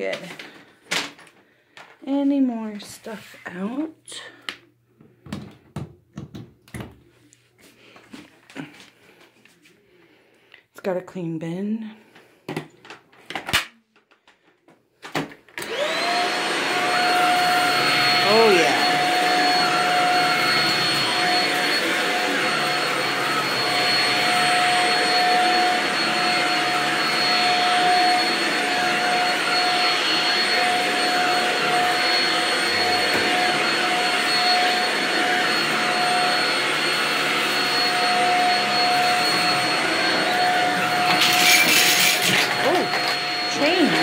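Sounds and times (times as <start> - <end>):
vacuum cleaner running on carpet: 15.6 - 44.0.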